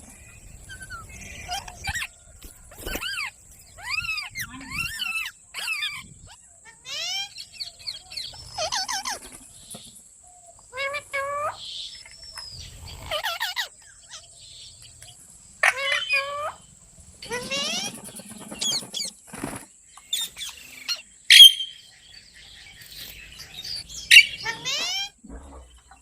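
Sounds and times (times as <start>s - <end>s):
parrot squawking: 15.6s - 16.6s, 21.3s - 21.8s, 24.1s - 25.2s.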